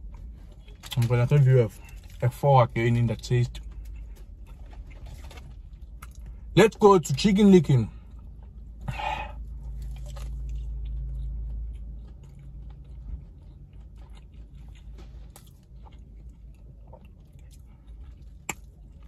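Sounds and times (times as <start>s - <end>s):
low steady hum: 0.0s - 19.0s
crunchy chewing: 8.0s - 19.0s.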